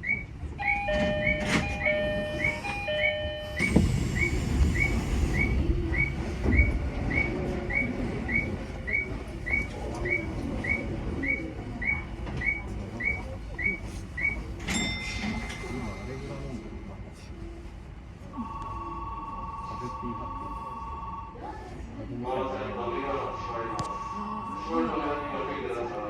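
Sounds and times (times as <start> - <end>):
train rumbling: 0.0 - 19.4.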